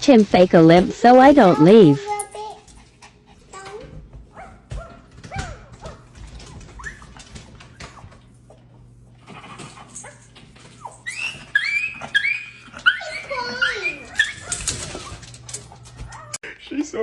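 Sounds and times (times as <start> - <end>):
dog whimpering: 10.8 - 15.2.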